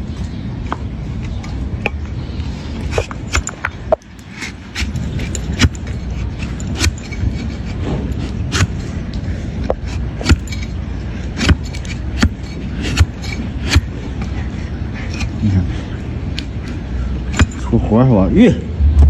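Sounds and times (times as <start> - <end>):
steady low rumble: 0.0 - 19.0
hoof knife cutting strokes: 2.7 - 8.9, 9.8 - 14.4.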